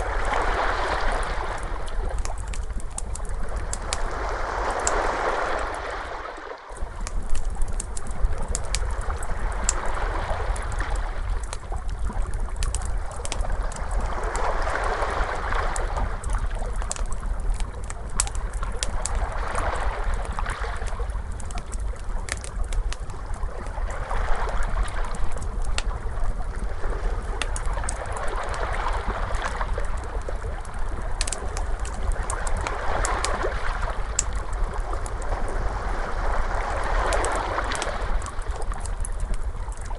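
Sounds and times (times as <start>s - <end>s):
ocean waves washing in: 0.0s - 2.3s, 3.2s - 7.0s, 13.3s - 17.0s, 31.6s - 39.7s
fire crackling and popping: 0.0s - 6.0s, 6.7s - 39.9s
steady low rumble: 6.8s - 39.9s.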